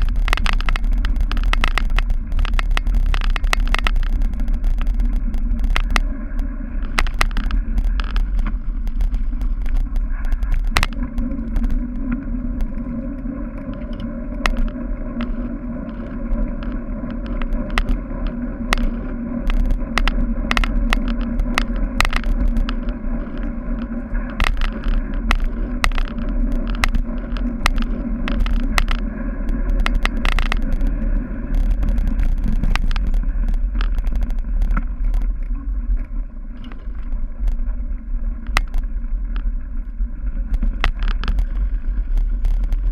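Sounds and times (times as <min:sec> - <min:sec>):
bike rattling over bumps: 0:00.0 - 0:42.9
wind and tyres rumbling: 0:00.0 - 0:42.9.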